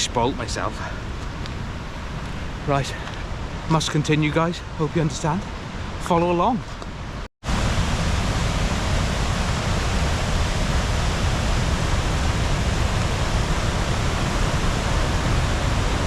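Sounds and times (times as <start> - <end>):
river whitewater rushing: 7.5 - 16.0.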